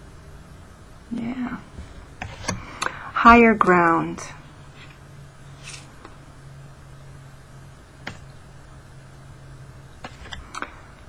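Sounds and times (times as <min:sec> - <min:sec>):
cards tapping and clicking: 0:08.0 - 0:08.3, 0:10.0 - 0:10.8.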